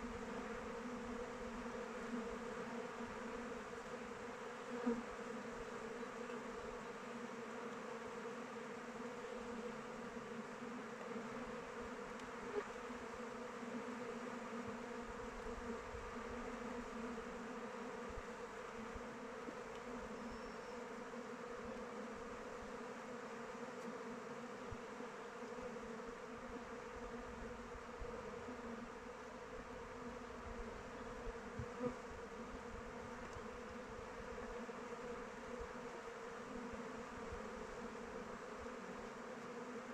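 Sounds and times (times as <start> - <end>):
faint ticks: 7.7 - 7.9, 12.1 - 12.4, 19.7 - 20.6, 33.2 - 33.5.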